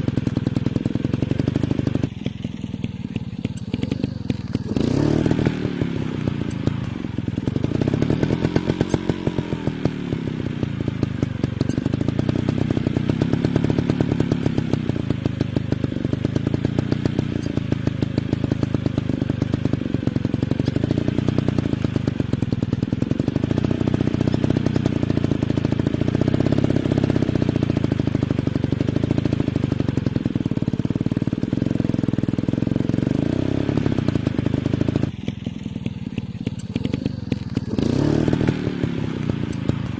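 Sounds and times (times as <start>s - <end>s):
dirt bike engines revving: 0.0s - 39.9s.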